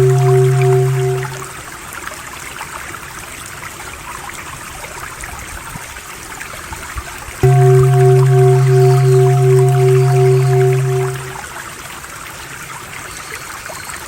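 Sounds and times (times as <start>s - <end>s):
low pulsing drone: 0.0s - 1.6s, 7.4s - 11.4s
stream trickling and splashing: 0.0s - 14.0s.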